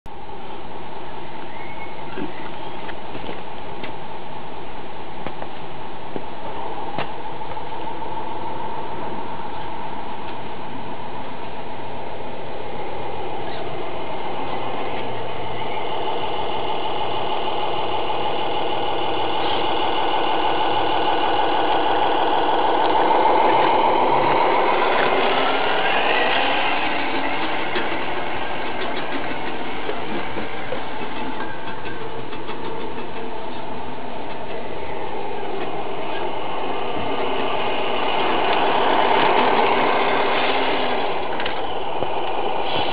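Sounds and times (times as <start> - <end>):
model truck drivetrain whir: 14.5 - 42.9.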